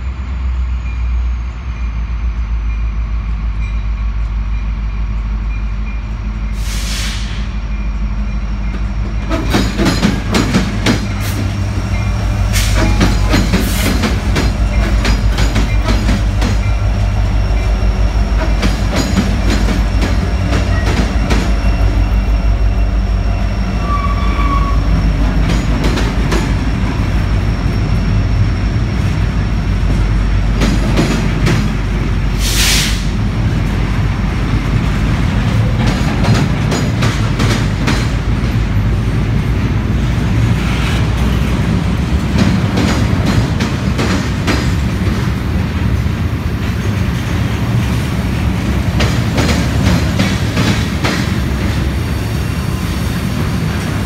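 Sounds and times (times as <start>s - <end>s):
diesel locomotives passing: 0.0s - 54.0s
brief high hiss: 32.4s - 33.1s.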